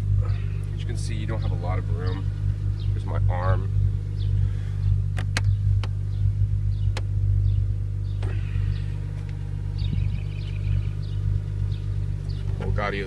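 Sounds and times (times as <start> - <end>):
car engine idling: 0.0 - 13.0
sharp clicks: 5.1 - 6.0.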